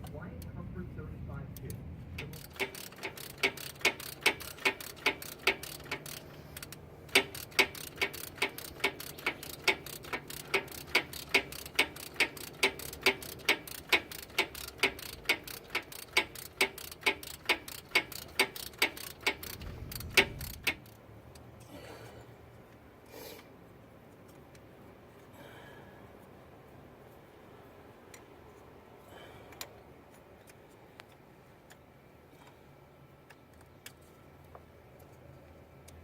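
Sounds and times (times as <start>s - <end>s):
ratchet wrench clicking: 2.2s - 21.4s.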